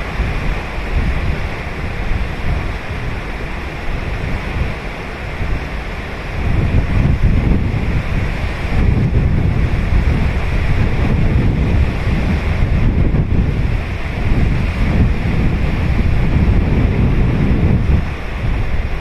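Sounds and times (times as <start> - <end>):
ocean surf breaking on beach: 0.0 - 19.0
wind buffeting microphone: 0.0 - 19.0.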